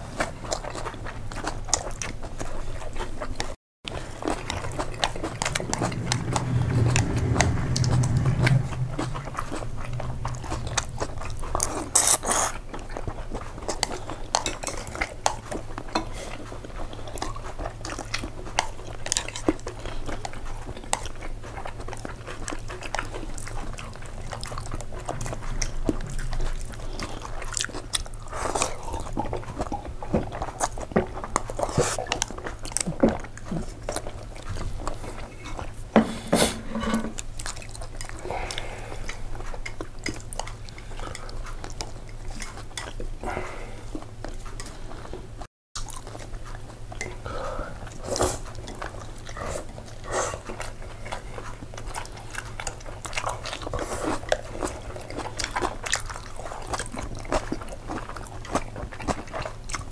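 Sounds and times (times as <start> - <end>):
person chewing and biting: 0.2 - 35.9, 37.1 - 45.2, 45.8 - 59.9.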